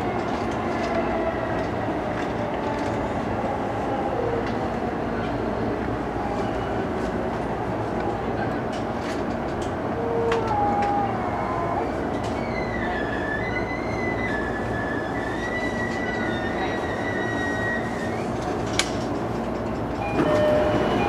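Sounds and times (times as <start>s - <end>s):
electric train running noise: 0.0s - 21.0s
high wavering wheel squeal: 10.7s - 18.3s.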